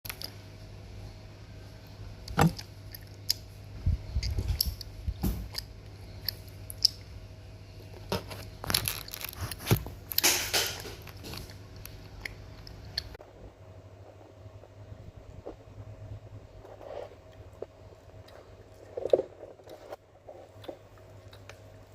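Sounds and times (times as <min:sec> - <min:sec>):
candy crunching: 0:07.8 - 0:13.2.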